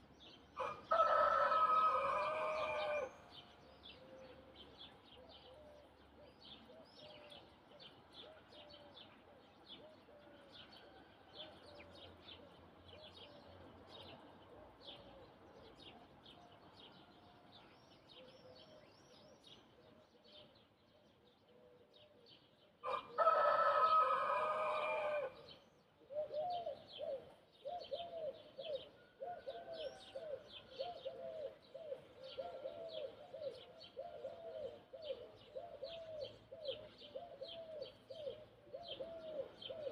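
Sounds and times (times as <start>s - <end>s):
rooster crowing: 0.6s - 3.2s, 22.8s - 25.5s
low bird calls: 24.7s - 39.9s
small birds chirping: 25.4s - 39.9s.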